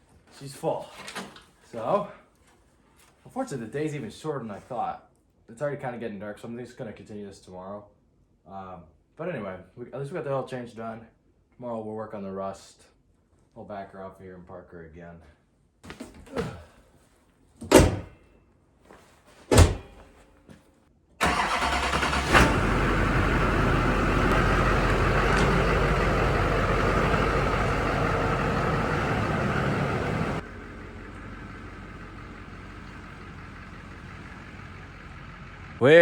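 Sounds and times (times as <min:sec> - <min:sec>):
diesel engine running: 0:21.2 - 0:36.0.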